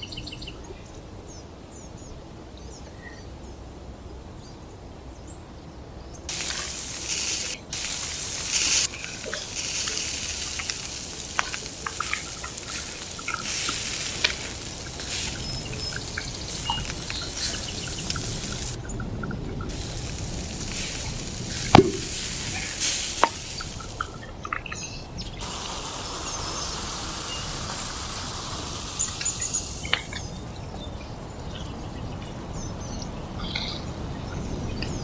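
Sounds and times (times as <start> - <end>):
faint birds: 0.0 - 35.0
insects buzzing: 0.0 - 35.0
small pops and drips: 6.3 - 25.6, 29.0 - 30.4
liquid hissing and splashing: 6.3 - 30.6.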